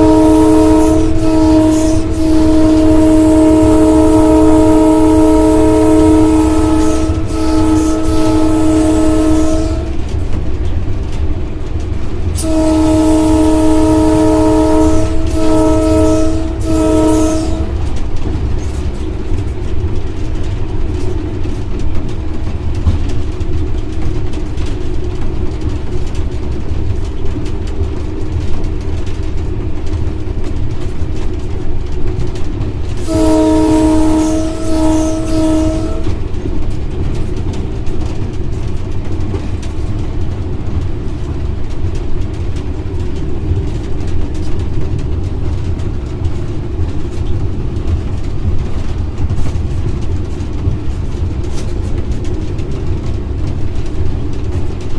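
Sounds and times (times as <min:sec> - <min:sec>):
locomotive air horn chord: 0:00.0 - 0:10.1, 0:12.4 - 0:18.0, 0:33.0 - 0:36.3
locomotive rumble: 0:00.0 - 0:54.9.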